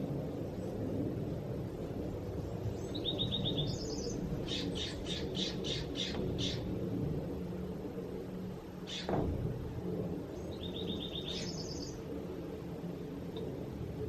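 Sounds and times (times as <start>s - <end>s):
low background rumble: 0.0s - 14.0s
songbird trilling and chirping: 2.8s - 6.7s, 8.9s - 9.2s, 10.4s - 12.0s.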